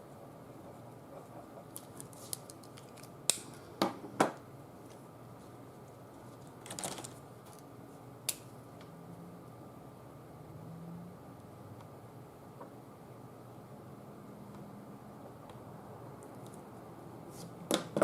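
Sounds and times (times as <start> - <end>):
pens and paper clicking and tapping: 1.1 - 3.5.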